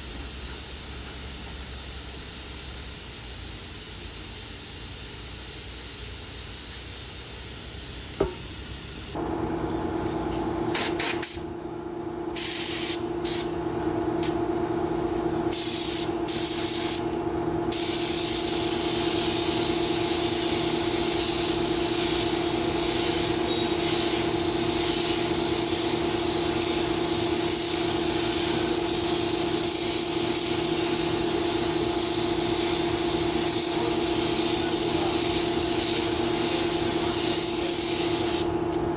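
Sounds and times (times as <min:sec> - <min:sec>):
paint spray gun hissing: 0:00.0 - 0:09.2, 0:10.8 - 0:11.4, 0:12.4 - 0:13.5, 0:15.5 - 0:17.1, 0:17.7 - 0:38.6
steady machine hum: 0:08.2 - 0:38.9.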